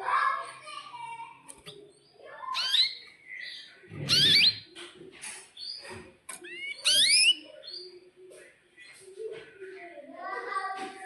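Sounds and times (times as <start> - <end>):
canary singing whistled sweeps: 4.1 - 4.6, 6.5 - 7.4.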